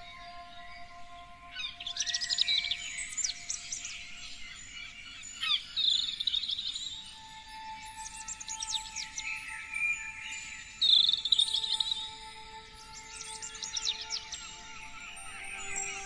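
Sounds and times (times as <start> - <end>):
songbirds chirping and singing: 0.0 - 16.0.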